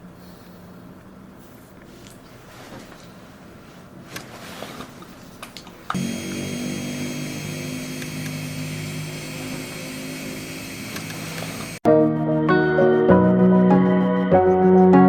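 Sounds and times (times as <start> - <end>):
electric nail drill running: 5.9 - 11.8.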